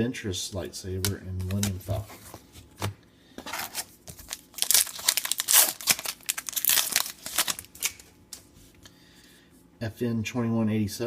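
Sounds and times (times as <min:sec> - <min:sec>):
wrapper tearing and crinkling: 0:03.5 - 0:08.1.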